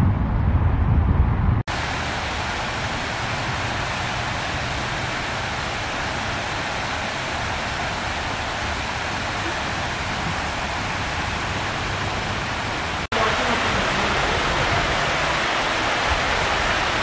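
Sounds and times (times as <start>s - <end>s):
low rumble: 0.0s - 1.7s
rushing hiss of water: 1.7s - 17.0s.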